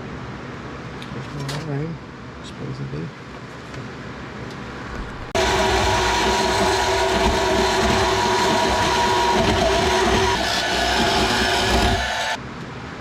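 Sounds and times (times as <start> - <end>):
power grinder on sheet steel: 5.4 - 12.4.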